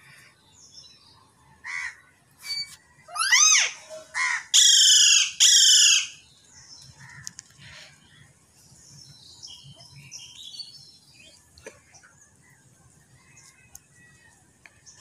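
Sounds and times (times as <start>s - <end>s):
bird calling harshly: 2.4s - 6.2s.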